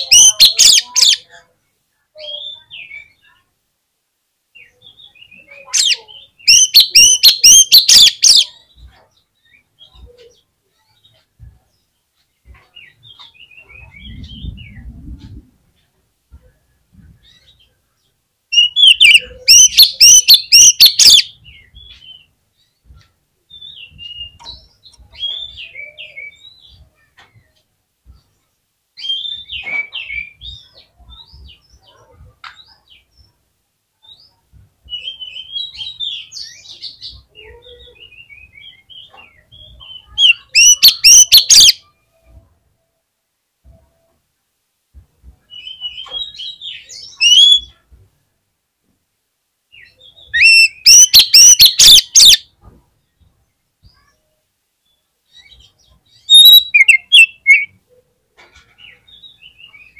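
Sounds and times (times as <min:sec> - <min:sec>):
bird whistled notes: 0:56.3 - 0:57.7.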